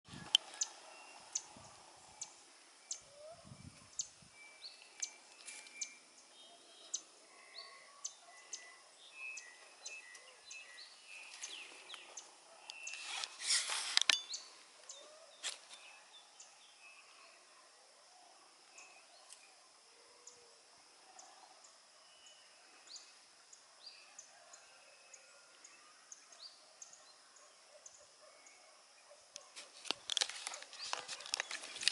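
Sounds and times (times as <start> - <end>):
birds chirping: 0.1 - 13.4, 14.0 - 17.4.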